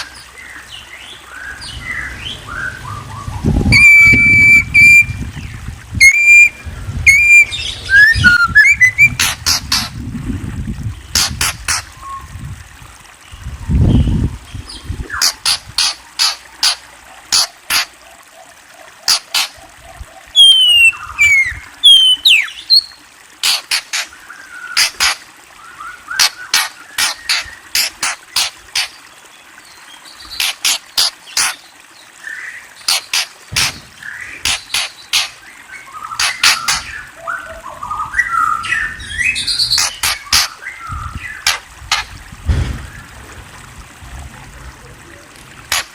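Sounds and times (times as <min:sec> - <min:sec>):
birds chirping: 0:00.0 - 0:10.0, 0:13.1 - 0:43.3
bird warbling: 0:01.3 - 0:05.2, 0:06.0 - 0:10.0, 0:11.1 - 0:12.3, 0:14.7 - 0:18.0, 0:18.8 - 0:29.0, 0:30.2 - 0:31.7, 0:32.3 - 0:42.2
falling whistled bird notes: 0:02.5 - 0:05.2, 0:06.0 - 0:09.2, 0:20.4 - 0:22.8
low thump: 0:42.4 - 0:43.0.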